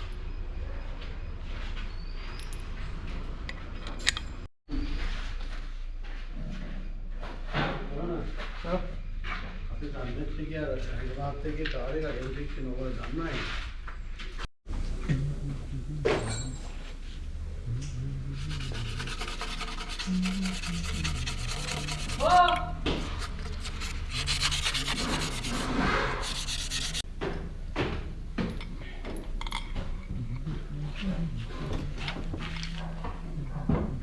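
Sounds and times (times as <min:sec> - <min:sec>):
abrasive rasping on hard surface: 0:18.0 - 0:27.0.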